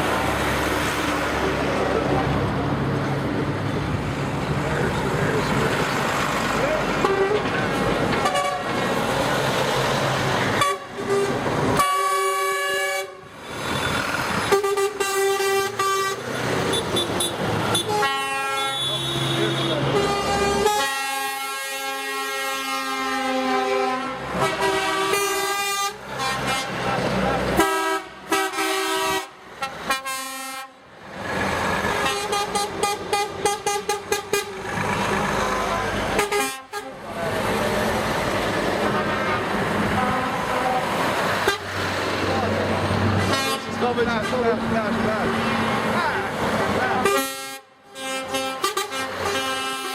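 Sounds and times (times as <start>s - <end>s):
passing vehicles: 0.0s - 49.9s
truck engines and tyres: 0.0s - 49.9s
truck horns blasting: 6.6s - 9.1s, 10.4s - 30.8s, 31.8s - 38.1s, 38.7s - 42.4s, 43.0s - 46.0s, 46.8s - 49.9s.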